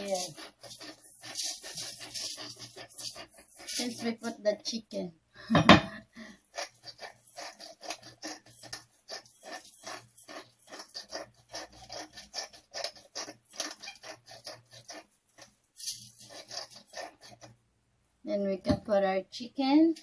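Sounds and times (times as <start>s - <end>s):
salt sprinkling into dish: 0.0s - 4.4s.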